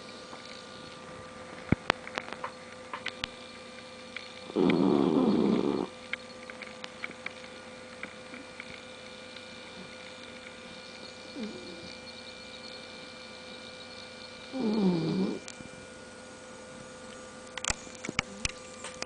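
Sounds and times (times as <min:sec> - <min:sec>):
dog snoring: 0:04.4 - 0:06.0, 0:11.0 - 0:12.2, 0:14.4 - 0:15.6.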